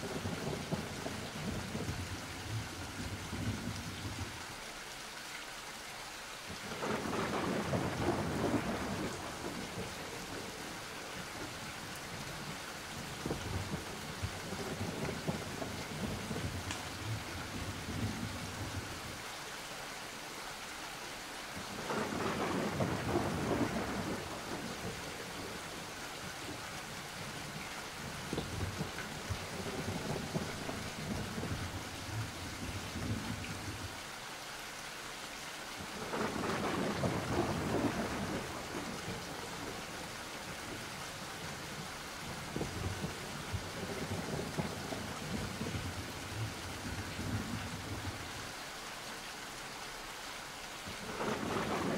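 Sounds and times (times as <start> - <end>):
steady rain: 0.0 - 51.9
rolling thunder: 6.8 - 10.6, 13.2 - 18.9, 21.8 - 25.8, 28.1 - 33.9, 36.0 - 40.0, 51.0 - 51.9.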